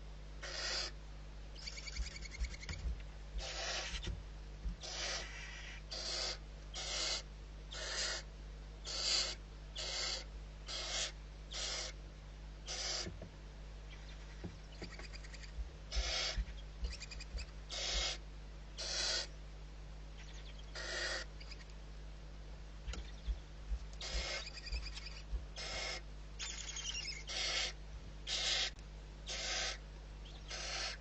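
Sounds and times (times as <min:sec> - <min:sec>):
low hum: 0:00.0 - 0:31.0
owl hissing calls: 0:00.4 - 0:01.0, 0:01.6 - 0:02.8, 0:03.4 - 0:04.1, 0:04.8 - 0:12.0, 0:12.6 - 0:13.2, 0:13.9 - 0:18.2, 0:18.8 - 0:19.4, 0:20.2 - 0:21.7, 0:24.0 - 0:31.0.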